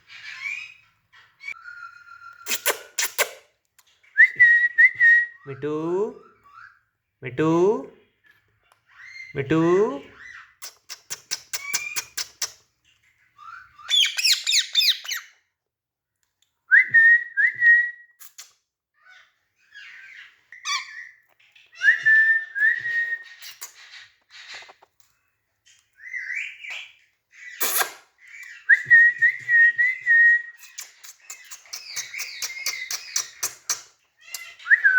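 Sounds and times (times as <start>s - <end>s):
parrot clicking chatter: 2.5s - 3.4s, 10.6s - 12.6s, 30.6s - 34.6s
parrot whistling: 21.8s - 23.6s, 34.6s - 34.9s.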